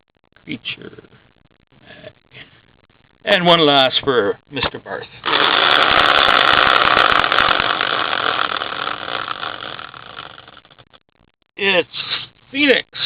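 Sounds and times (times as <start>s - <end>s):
prize wheel clicking: 5.2s - 10.7s.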